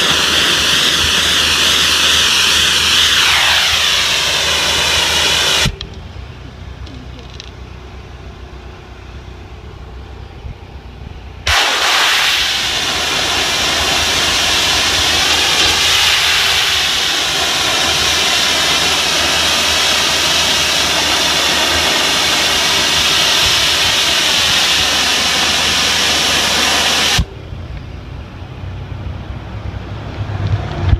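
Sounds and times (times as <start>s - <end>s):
high-pressure water jet hissing: 0.0s - 5.8s, 11.4s - 27.3s
low machine hum: 0.0s - 11.9s, 12.7s - 30.9s.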